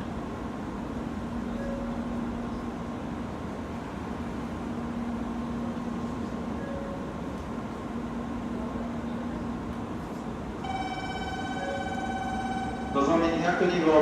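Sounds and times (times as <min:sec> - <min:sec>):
train humming at platform: 0:00.0 - 0:14.0
electronic platform tone: 0:10.6 - 0:14.0.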